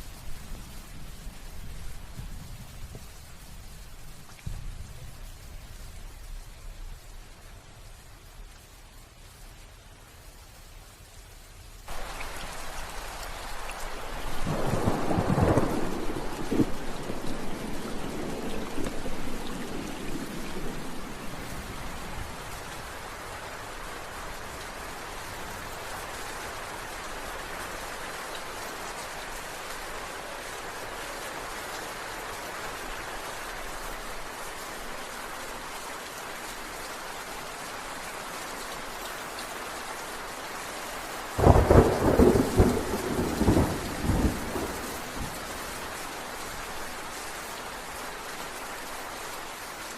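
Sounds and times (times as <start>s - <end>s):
heavy rain falling: 0.0s - 49.9s
thunder rumbling: 11.9s - 22.7s, 41.4s - 46.0s
loud thunderclap: 14.3s - 20.8s, 41.4s - 45.4s.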